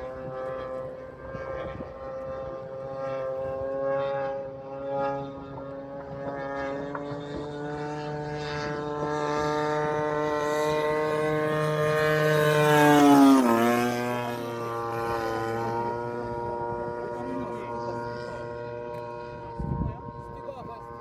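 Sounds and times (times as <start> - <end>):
model plane engine flying past: 0.0 - 21.0.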